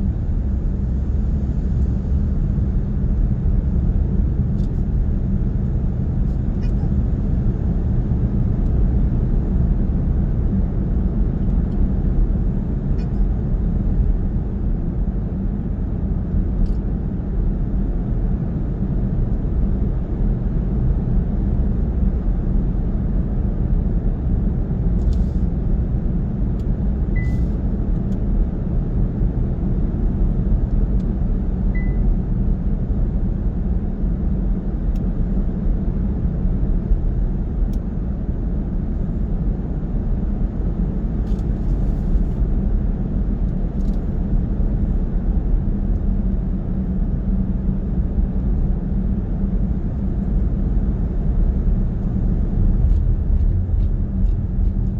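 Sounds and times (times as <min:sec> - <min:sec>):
car road and engine rumble: 0:00.0 - 0:54.9
faint high beeps: 0:31.8 - 0:32.0.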